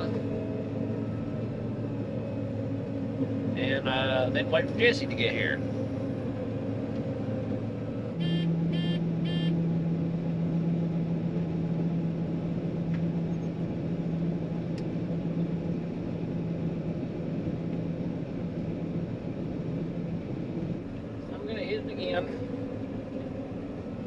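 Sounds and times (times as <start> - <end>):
combine harvester running: 0.0 - 24.0
low hum: 5.6 - 21.3
electronic beeps: 8.2 - 9.5.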